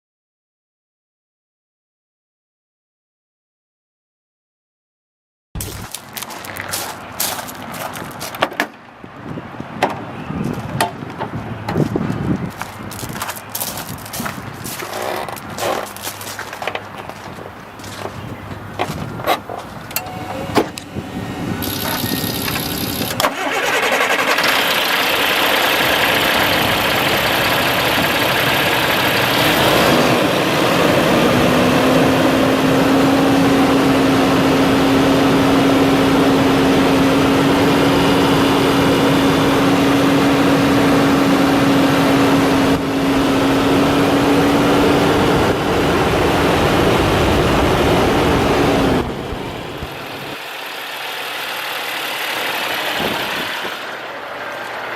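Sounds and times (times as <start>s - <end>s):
diesel truck engine running: 11.0s - 54.9s
steady whine: 16.5s - 30.6s.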